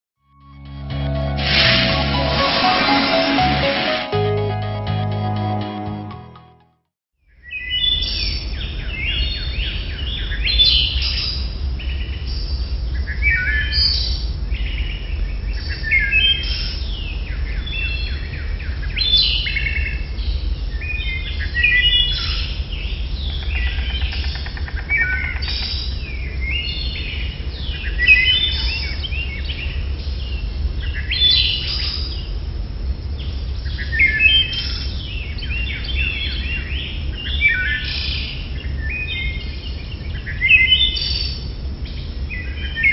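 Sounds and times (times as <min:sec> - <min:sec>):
birds chirping and calling: 0:23.2 - 0:26.0.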